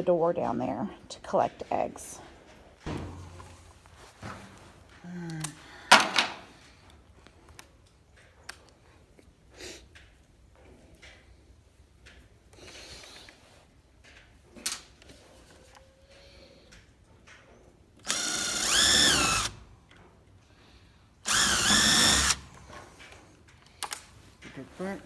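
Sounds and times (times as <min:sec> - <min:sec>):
power drill motor whine: 0:18.0 - 0:19.6, 0:21.2 - 0:22.6.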